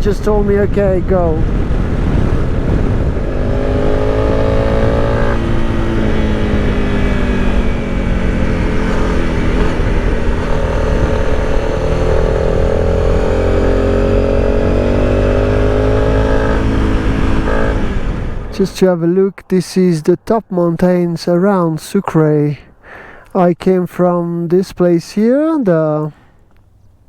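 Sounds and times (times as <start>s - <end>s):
motorcycle engine running: 0.8s - 18.7s.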